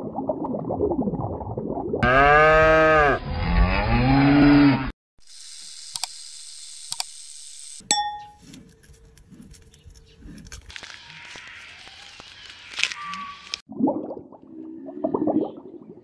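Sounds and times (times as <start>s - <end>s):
cow mooing: 2.0s - 4.9s
bell ding: 7.9s - 8.4s.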